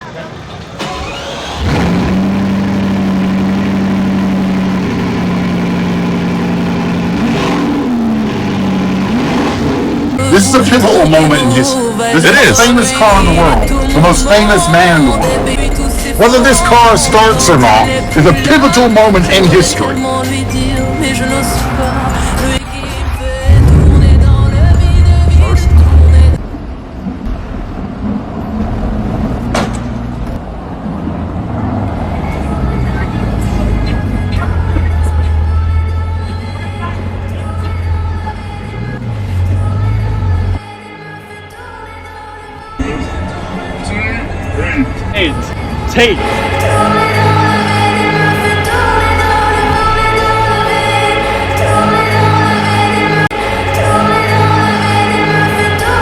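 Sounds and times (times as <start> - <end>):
car engine idling: 0.1 - 40.7.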